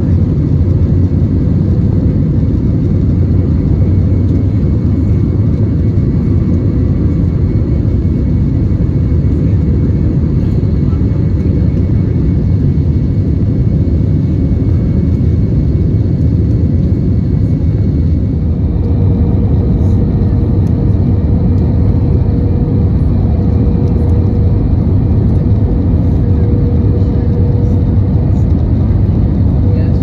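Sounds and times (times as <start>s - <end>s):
airflow and jet engine rumble: 0.0s - 30.0s
steady low hum: 0.0s - 30.0s
faint steady whine: 16.8s - 30.0s.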